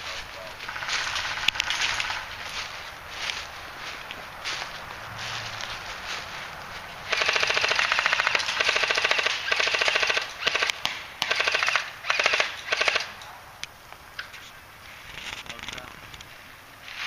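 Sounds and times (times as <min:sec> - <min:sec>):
airsoft gun firing full auto: 0:07.1 - 0:13.1.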